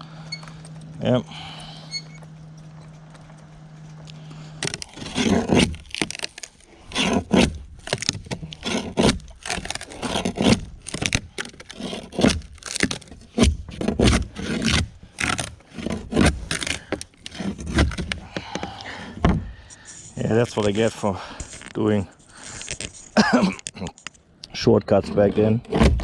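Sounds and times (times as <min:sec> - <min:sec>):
faint low hum: 0:00.0 - 0:11.4
hand tool scraping fiberglass hull: 0:03.9 - 0:26.0.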